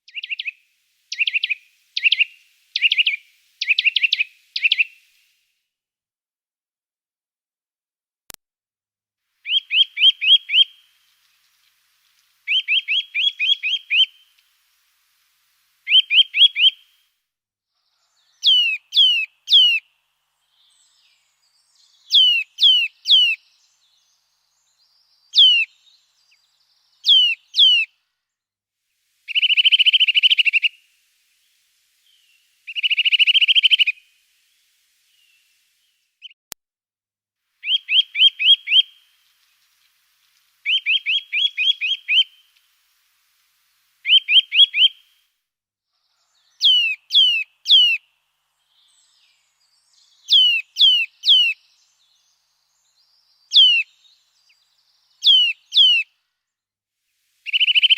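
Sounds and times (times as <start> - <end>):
songbird whistling: 0.1 - 5.1, 9.4 - 11.0, 12.4 - 14.4, 15.8 - 17.0, 18.0 - 28.0, 29.2 - 36.5, 37.6 - 39.3, 40.6 - 42.6, 44.0 - 45.2, 46.2 - 56.1, 57.4 - 57.9.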